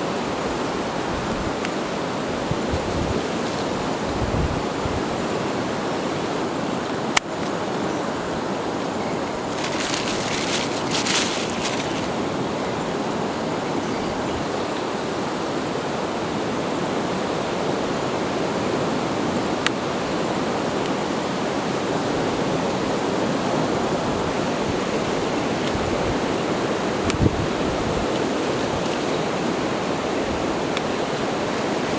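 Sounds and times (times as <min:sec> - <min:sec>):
strong wind: 0:02.2 - 0:05.2, 0:09.2 - 0:12.6, 0:24.0 - 0:31.9
brief crackle: 0:09.5 - 0:12.4.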